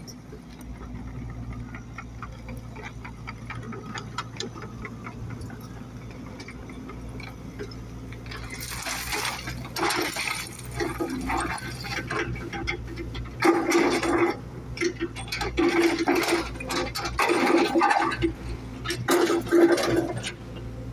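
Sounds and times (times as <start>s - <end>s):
small clicks and ticks: 0.1s - 8.6s.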